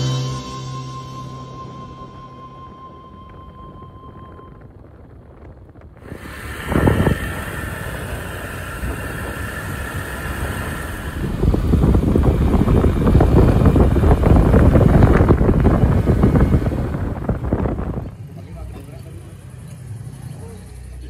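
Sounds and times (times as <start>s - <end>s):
wind buffeting microphone: 2.6s - 18.4s
motorcycle engine and road noise: 2.7s - 21.0s.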